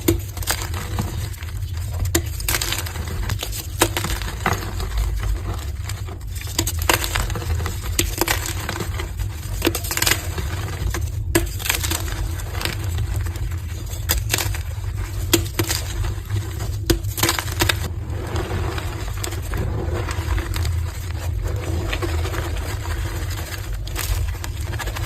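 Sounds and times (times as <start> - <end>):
chalk crunching: 0.0 - 25.0
steady low hum: 0.0 - 25.0.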